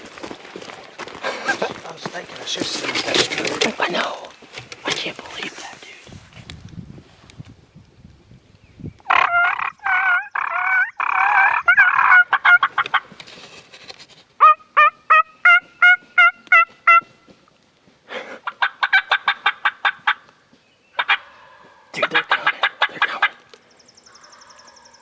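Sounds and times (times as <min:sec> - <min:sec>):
turkey gobbling: 0:09.1 - 0:13.1, 0:14.4 - 0:17.2, 0:18.4 - 0:20.3, 0:21.0 - 0:23.5
turkey yelps: 0:09.1 - 0:13.1, 0:14.4 - 0:17.1, 0:18.4 - 0:20.2, 0:21.0 - 0:23.4.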